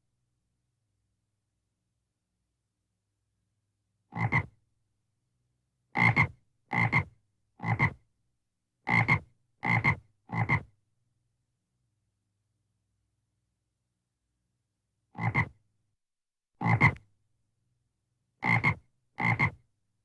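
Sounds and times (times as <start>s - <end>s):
frog croaking: 4.2s - 4.5s, 15.2s - 15.5s, 18.4s - 19.6s.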